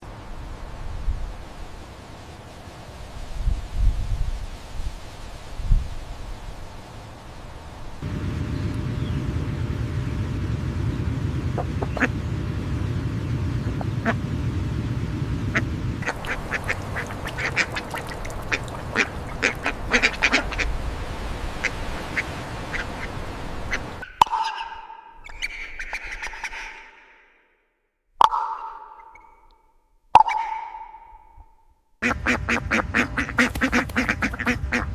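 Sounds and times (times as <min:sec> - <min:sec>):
steady low rumble: 0:00.0 - 0:24.1, 0:31.3 - 0:34.9
ducks quacking: 0:11.5 - 0:12.2, 0:13.6 - 0:14.2, 0:15.5 - 0:20.8, 0:21.5 - 0:24.8, 0:32.0 - 0:34.9.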